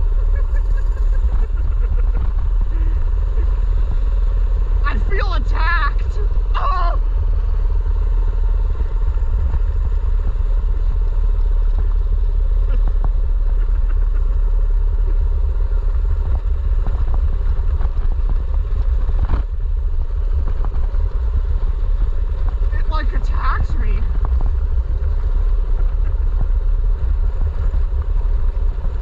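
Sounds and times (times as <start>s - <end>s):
small motorbike engine running: 0.0s - 29.0s
wind rumble on microphone: 6.0s - 29.0s.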